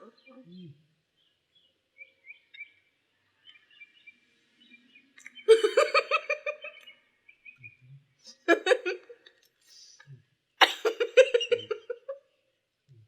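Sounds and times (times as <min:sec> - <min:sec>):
person laughing or coughing: 0:05.5 - 0:06.0, 0:10.6 - 0:12.0.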